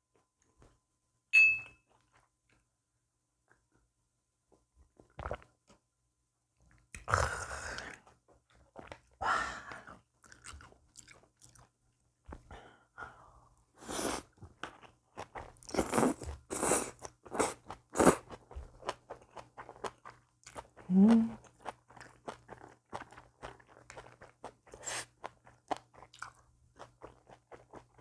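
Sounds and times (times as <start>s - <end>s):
chewing and crunching food: 1.9s - 2.7s, 4.8s - 5.8s, 6.6s - 12.5s, 14.0s - 28.0s.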